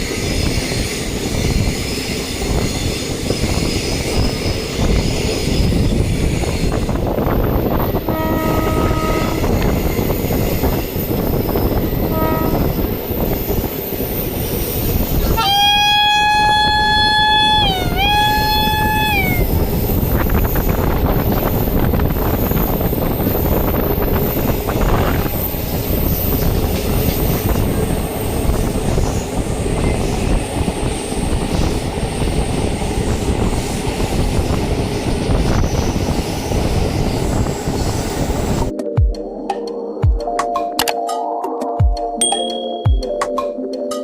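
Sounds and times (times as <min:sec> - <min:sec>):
train wheels rumbling on rails: 0:00.0 - 0:38.7
locomotive horn: 0:08.1 - 0:09.8, 0:12.0 - 0:13.0.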